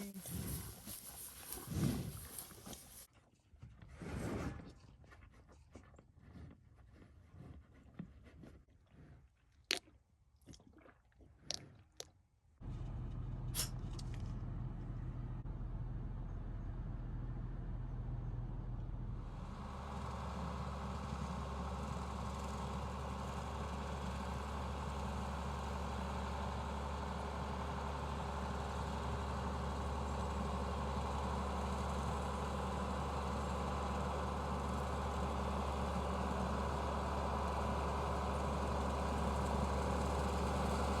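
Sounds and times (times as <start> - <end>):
tractor engine humming: 0.0 - 3.1, 12.6 - 41.0.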